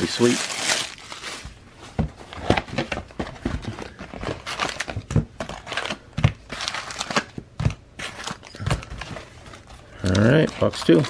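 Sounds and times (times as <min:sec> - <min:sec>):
packaging crinkling and tearing: 0:00.0 - 0:01.5, 0:04.2 - 0:07.4, 0:08.0 - 0:11.0.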